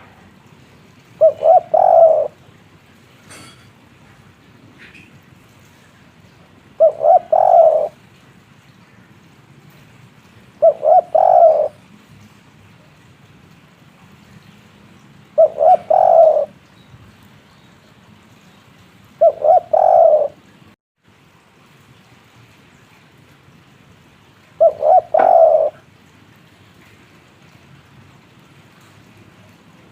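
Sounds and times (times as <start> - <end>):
dove cooing: 1.2 - 2.4, 6.8 - 8.0, 10.6 - 11.8, 15.4 - 16.6, 19.2 - 20.5, 24.6 - 25.9.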